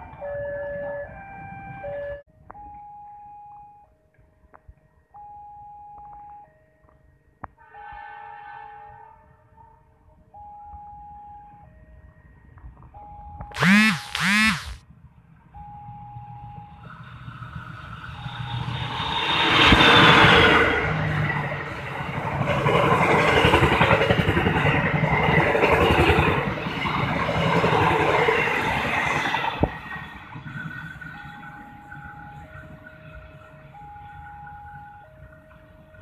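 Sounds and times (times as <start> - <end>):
train passing at speed: 16.5 - 36.0.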